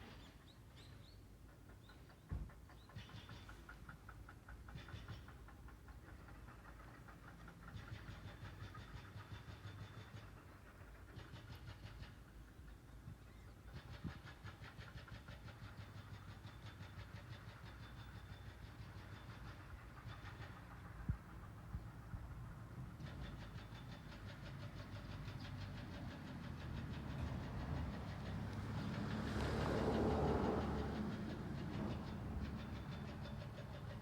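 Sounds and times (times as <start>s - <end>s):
low outdoor rumble: 19.6s - 34.0s
motor vehicle passing: 25.6s - 33.8s.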